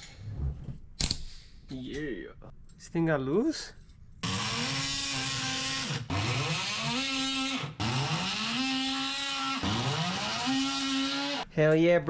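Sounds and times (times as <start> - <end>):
power tool motor spinning: 4.2 - 11.4.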